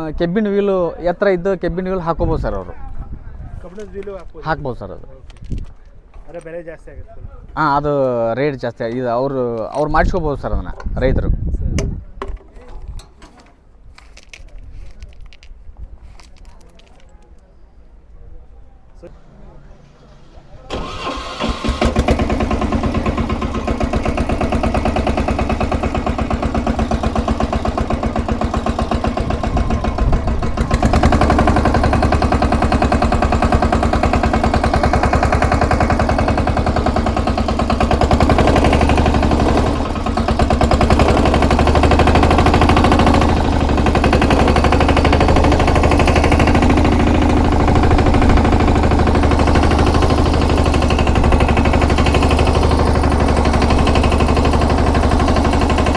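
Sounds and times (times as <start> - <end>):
diesel engine running: 18.9 - 55.9.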